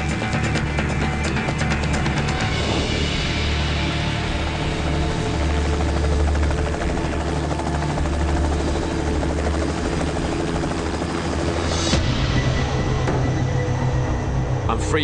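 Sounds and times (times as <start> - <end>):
helicopter engine drone: 0.0 - 15.0
helicopter rotor chopping: 0.0 - 15.0.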